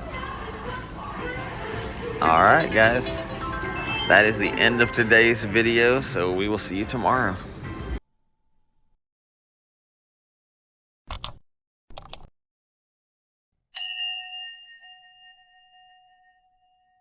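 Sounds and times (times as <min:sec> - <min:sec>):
bell-like chime: 0:02.2 - 0:05.6, 0:13.8 - 0:17.0.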